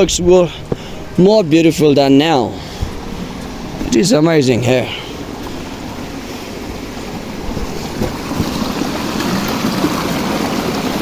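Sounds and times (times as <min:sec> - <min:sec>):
water rushing in a stream: 0:00.1 - 0:11.0
wind noise on microphone: 0:05.2 - 0:11.0.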